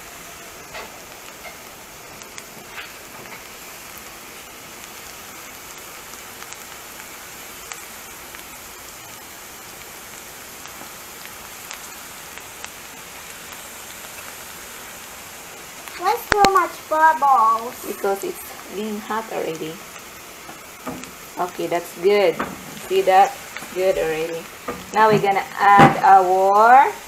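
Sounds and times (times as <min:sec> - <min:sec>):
onion sizzling in butter: 0:00.0 - 0:27.0
spatula tapping and scraping: 0:22.3 - 0:26.1.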